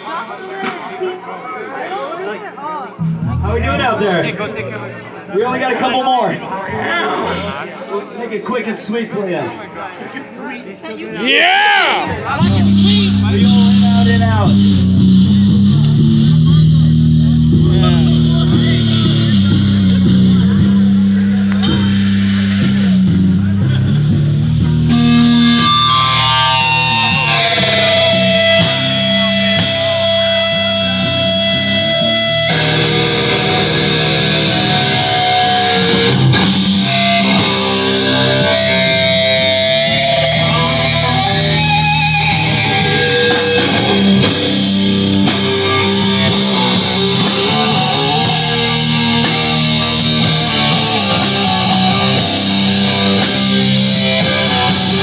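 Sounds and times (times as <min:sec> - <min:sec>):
drums: 0:00.0 - 0:05.2, 0:06.6 - 0:07.7, 0:11.2 - 0:55.0
bass guitar: 0:03.0 - 0:05.2, 0:06.7 - 0:07.6, 0:11.7 - 0:55.0
electric guitars: 0:12.0 - 0:55.0.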